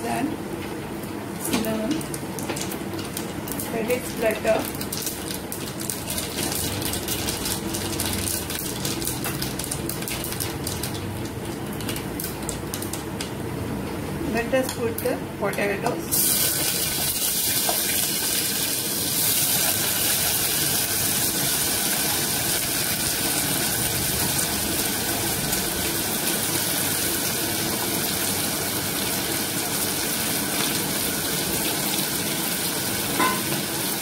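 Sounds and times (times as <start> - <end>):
potatoes sizzling in hot oil: 2.5 - 11.0, 16.1 - 34.0.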